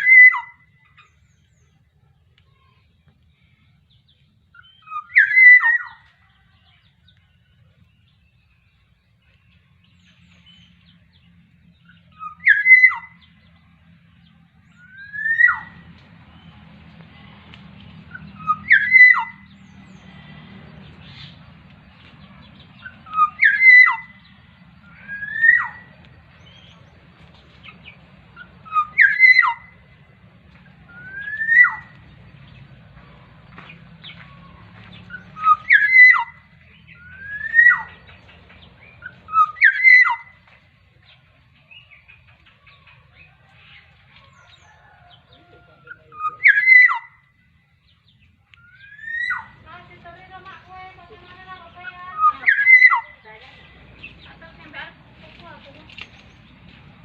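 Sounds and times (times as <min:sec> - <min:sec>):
bird whistling call: 0:00.0 - 0:01.1, 0:04.6 - 0:06.1, 0:11.9 - 0:13.3, 0:14.8 - 0:15.8, 0:18.1 - 0:19.5, 0:22.8 - 0:24.3, 0:24.9 - 0:25.9, 0:28.4 - 0:29.8, 0:30.9 - 0:31.9, 0:35.1 - 0:38.1, 0:38.8 - 0:40.4, 0:45.9 - 0:47.2, 0:48.6 - 0:49.6, 0:52.1 - 0:53.2.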